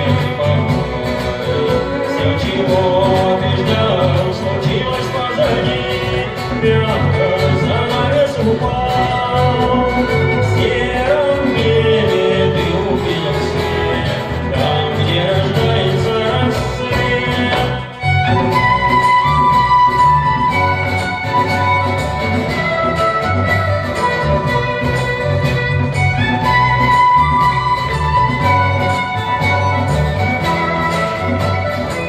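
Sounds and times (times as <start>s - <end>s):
fiddle: 0.0s - 32.0s
guitar accompaniment: 0.0s - 32.0s.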